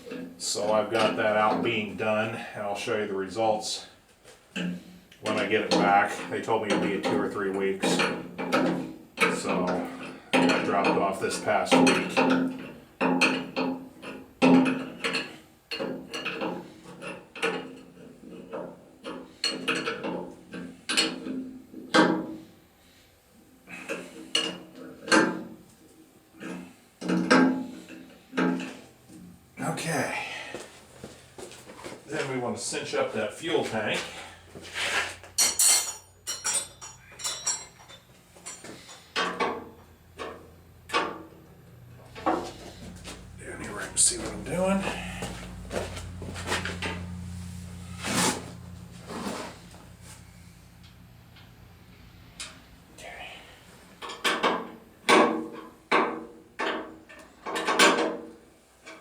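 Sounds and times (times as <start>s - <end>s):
metal clinks and taps: 35.4s - 39.6s.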